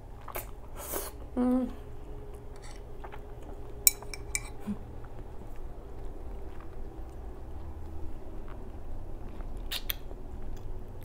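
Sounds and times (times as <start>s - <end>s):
chewing with lip-smacking: 2.3s - 11.0s
fork clinking against bowl: 3.9s - 4.6s.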